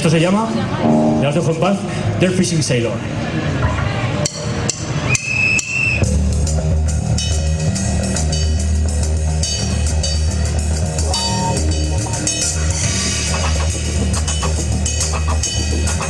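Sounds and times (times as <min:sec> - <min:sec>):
rock band playing: 0:00.7 - 0:02.2, 0:06.0 - 0:16.0
heavy bass line: 0:00.8 - 0:02.2, 0:06.2 - 0:16.0.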